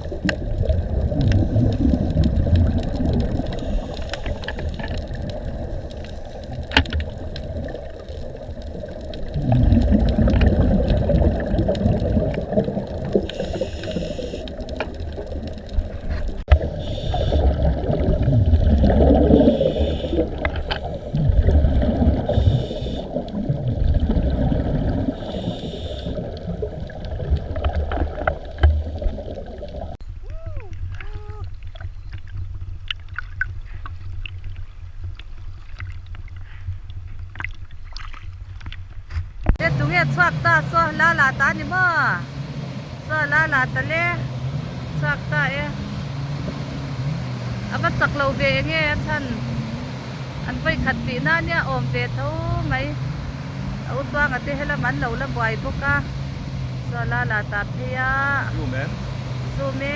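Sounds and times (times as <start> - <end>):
water gurgling and bubbling: 0.0 - 30.0, 39.5 - 59.9
water sloshing and rumbling: 0.0 - 59.9
short hissing bursts: 3.6 - 4.9, 13.2 - 14.5, 16.7 - 17.6, 19.2 - 20.4, 22.3 - 23.2, 25.1 - 26.3.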